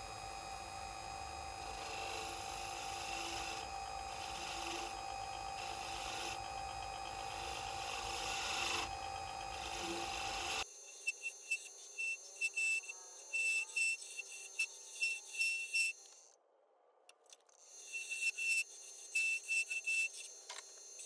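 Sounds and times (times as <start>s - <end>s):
workshop machine running: 0.0s - 10.6s.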